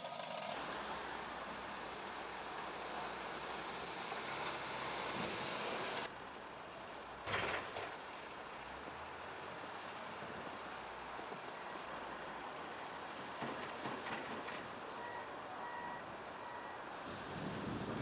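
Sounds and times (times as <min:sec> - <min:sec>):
heavy vehicle engine running: 0:00.0 - 0:18.0
reversing alarm beeping: 0:15.0 - 0:16.8.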